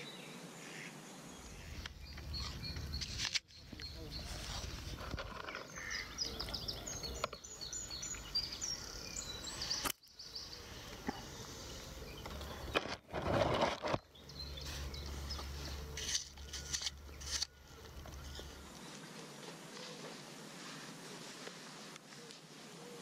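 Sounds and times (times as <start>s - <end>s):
small songbird singing: 1.2s - 13.0s, 13.8s - 19.2s.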